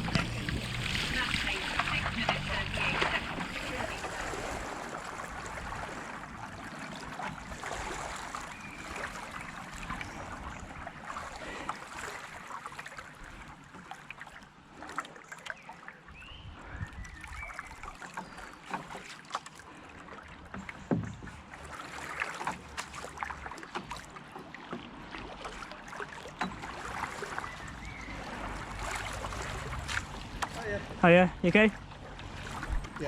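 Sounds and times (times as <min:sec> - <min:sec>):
paddle knocks: 0:00.0 - 0:04.8, 0:20.4 - 0:31.0
paddle strokes splashing in water: 0:00.0 - 0:33.0.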